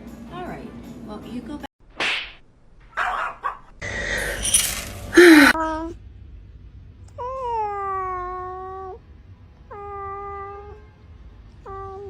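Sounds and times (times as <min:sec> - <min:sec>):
cat meowing: 0:09.7 - 0:10.8.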